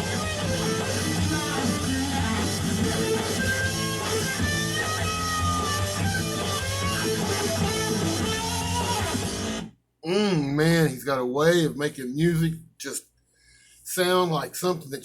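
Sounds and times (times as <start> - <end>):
bass line: 0.0 - 9.5
rock song with electric guitar: 0.0 - 9.7.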